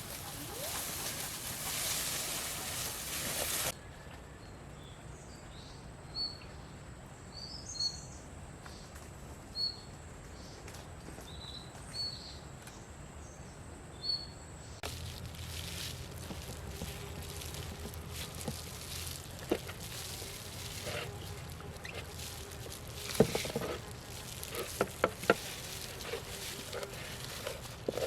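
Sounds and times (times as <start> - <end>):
loud rushing hiss: 0.0 - 3.7.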